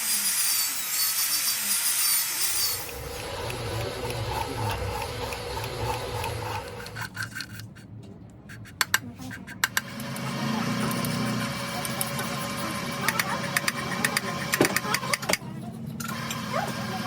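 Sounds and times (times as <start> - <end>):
power tool whining: 0.8 - 7.1
machine hum: 2.5 - 7.3, 9.7 - 15.4.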